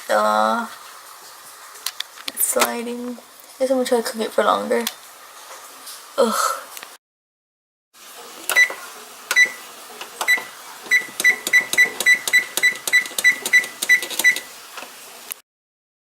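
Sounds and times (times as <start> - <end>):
oven control panel beeping: 8.5 - 15.0.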